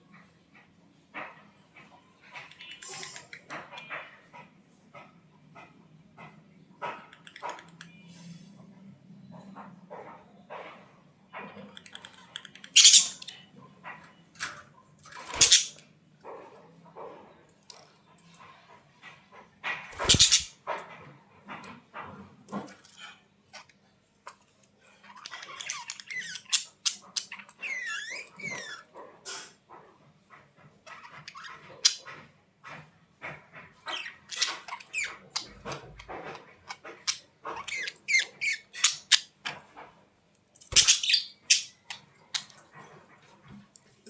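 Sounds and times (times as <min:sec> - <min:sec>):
budgerigars chattering: 0:12.8 - 0:13.3, 0:15.4 - 0:15.8, 0:20.0 - 0:20.5, 0:40.7 - 0:42.0.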